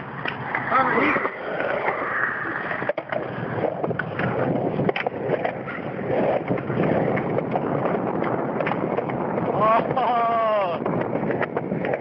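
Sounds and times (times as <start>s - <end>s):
skateboard clicks and knocks: 0.0s - 12.0s
skateboard wheels on wet concrete: 0.0s - 12.0s.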